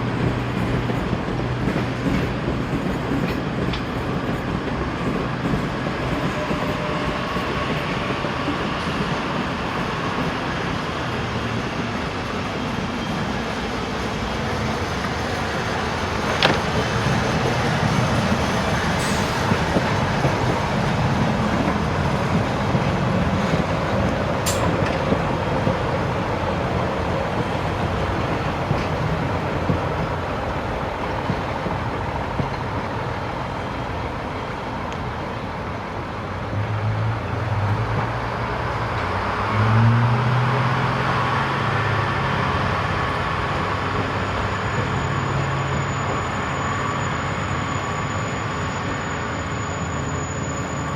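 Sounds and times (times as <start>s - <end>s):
train rumbling: 0.0s - 50.9s.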